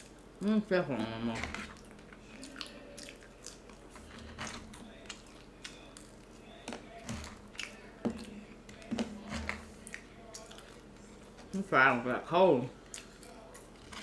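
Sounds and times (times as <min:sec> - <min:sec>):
person chewing fries: 0:00.0 - 0:11.7, 0:12.7 - 0:14.0.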